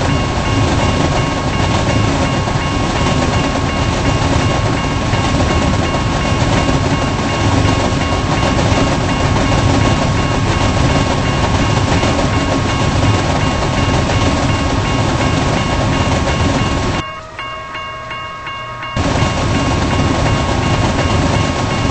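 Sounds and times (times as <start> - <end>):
freight train wheels rumbling: 0.0 - 21.9.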